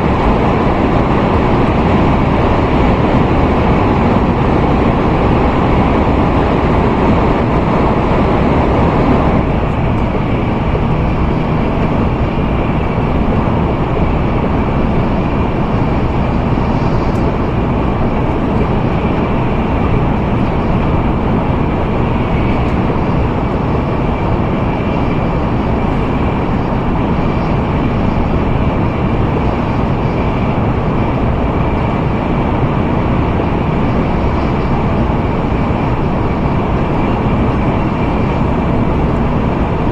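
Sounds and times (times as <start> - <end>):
train running at speed: 0.0 - 39.9.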